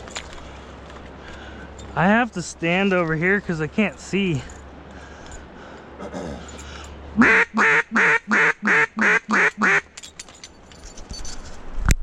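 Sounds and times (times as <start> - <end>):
duck call quacks: 7.2 - 9.8.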